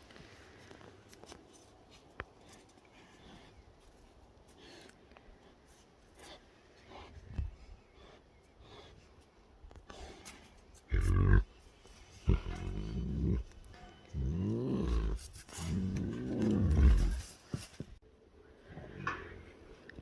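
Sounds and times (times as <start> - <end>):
tigers growling and snarling: 10.8 - 17.5.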